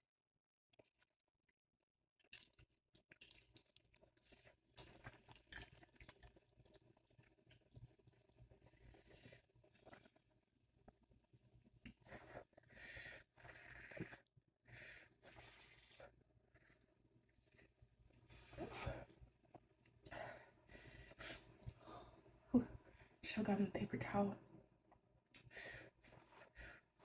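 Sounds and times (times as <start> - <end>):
noodles being slurped: 2.2 - 10.2.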